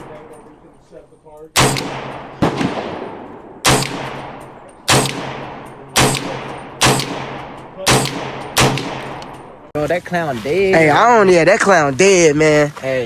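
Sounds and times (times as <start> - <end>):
rifle shots with echo: 1.6 - 9.7.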